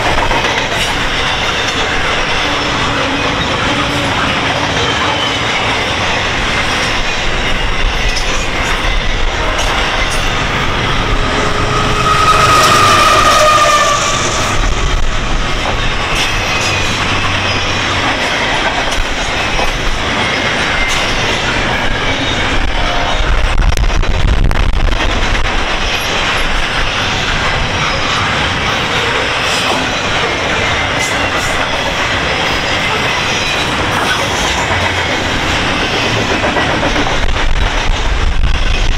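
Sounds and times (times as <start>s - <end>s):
freight train wheels on rails: 0.0s - 38.9s
high wheel squeal: 0.8s - 18.5s.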